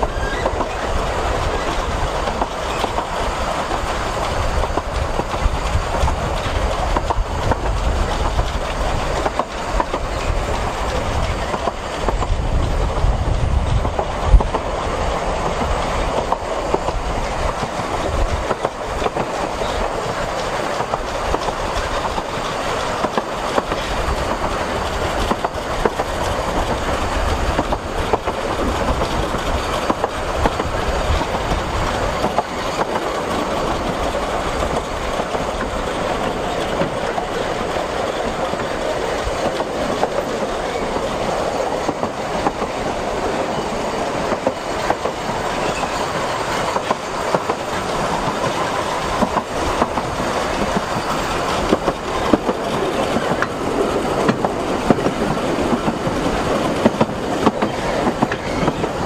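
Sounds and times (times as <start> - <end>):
train carriage rumbling: 0.0 - 59.0
wheels clattering over rails: 0.0 - 59.0.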